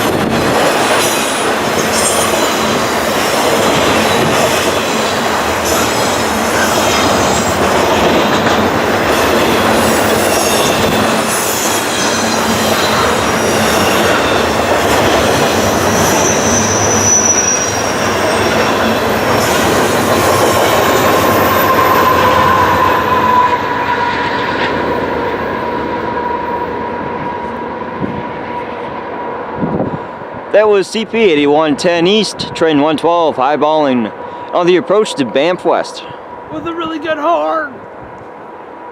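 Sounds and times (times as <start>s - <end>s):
train wheels rushing on rail: 0.0s - 38.9s
high wheel squealing: 0.8s - 27.6s.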